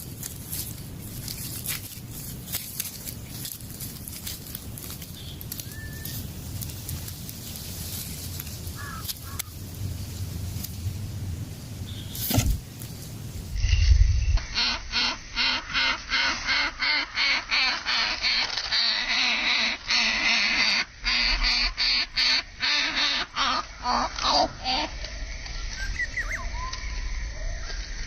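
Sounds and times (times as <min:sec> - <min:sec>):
nestlings rasping begging calls: 0:08.8 - 0:09.6.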